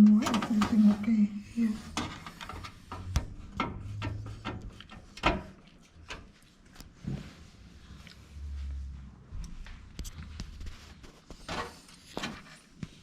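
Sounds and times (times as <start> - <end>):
computer parts clicking and knocking: 1.9 - 6.3.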